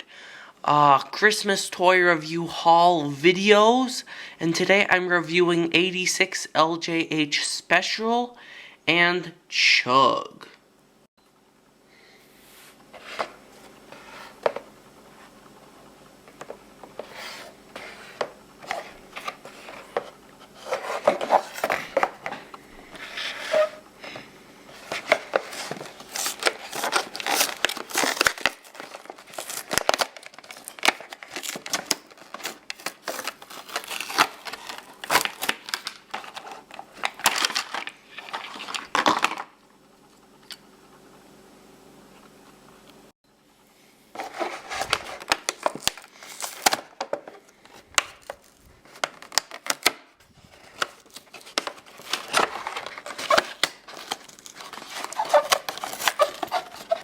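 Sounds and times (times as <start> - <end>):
plastic packaging crinkling and tearing: 24.7 - 39.5, 44.2 - 57.0.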